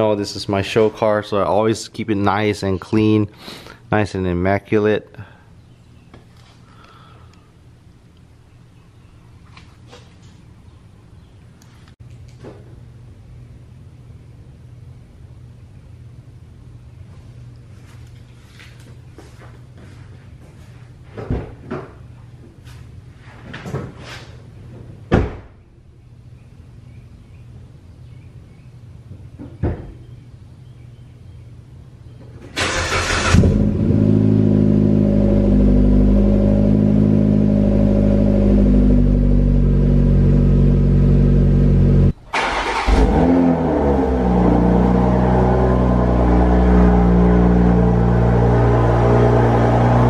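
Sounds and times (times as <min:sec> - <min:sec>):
car engine starting and idling: 0:32.5 - 0:50.0.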